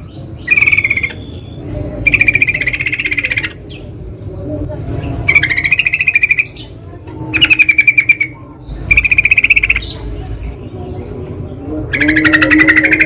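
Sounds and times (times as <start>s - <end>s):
bird chattering calls: 0.0s - 4.0s, 5.0s - 10.1s, 11.9s - 13.0s.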